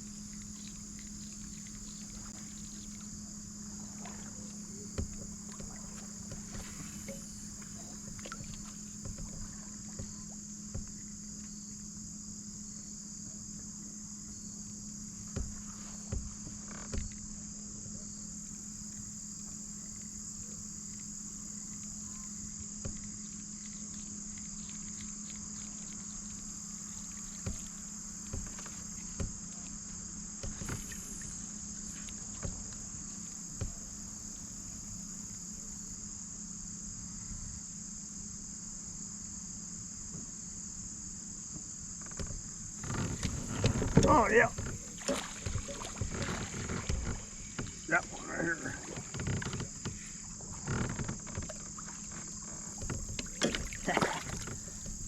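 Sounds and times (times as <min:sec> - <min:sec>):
insects chirping: 0:00.0 - 0:55.0
knocks on kayak and fishing gear: 0:15.3 - 0:17.1, 0:52.8 - 0:55.0.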